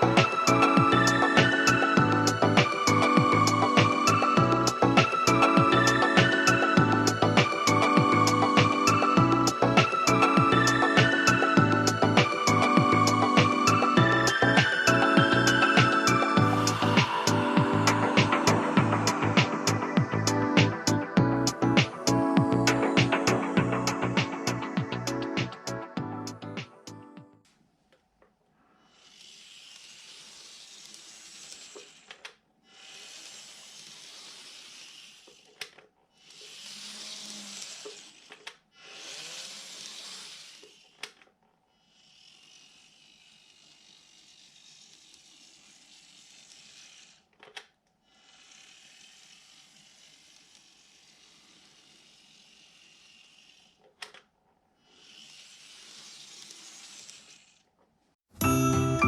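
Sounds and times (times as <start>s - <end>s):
model train running on track: 29.0s - 32.0s, 32.8s - 35.4s, 36.2s - 41.0s, 41.9s - 47.2s, 48.1s - 53.8s, 54.9s - 57.6s.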